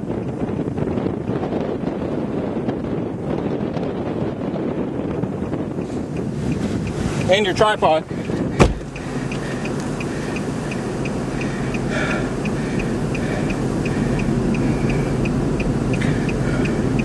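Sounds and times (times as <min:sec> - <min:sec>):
car engine low rumble: 0:00.0 - 0:17.0
wind noise: 0:00.0 - 0:17.0
car warning chime ticks: 0:05.8 - 0:17.0.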